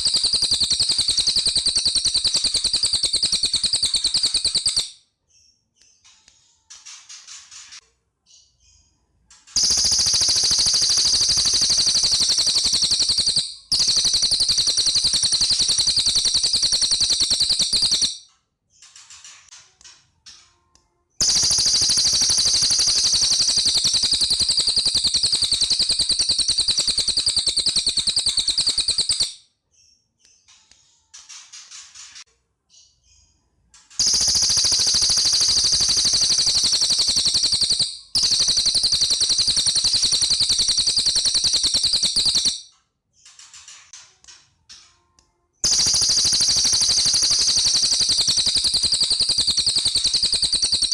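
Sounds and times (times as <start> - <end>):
bird rapid trills: 0.0 - 4.9, 9.6 - 18.2, 21.2 - 29.3, 34.0 - 42.6, 45.6 - 50.9.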